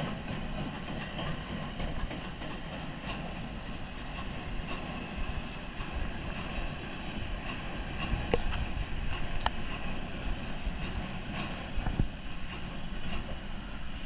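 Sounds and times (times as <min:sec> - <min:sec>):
train rumbling along track: 0:00.0 - 0:14.0.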